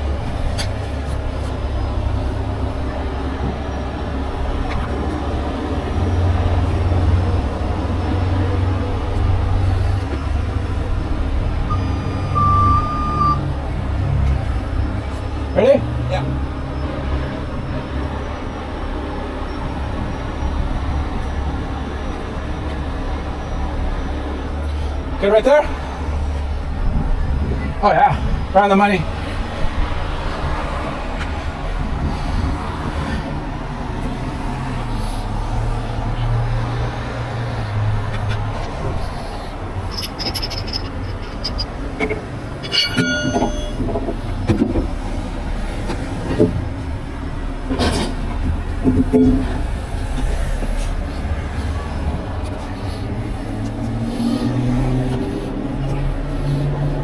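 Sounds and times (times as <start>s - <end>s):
low engine rumble: 16.4s - 57.0s
metallic clanks and rattles: 38.2s - 45.0s
high metal screech: 39.2s - 43.9s.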